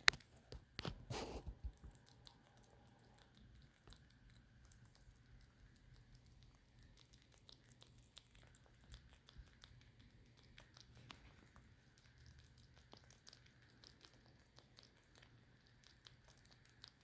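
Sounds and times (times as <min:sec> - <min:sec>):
faint small clicks: 0:00.0 - 0:12.0.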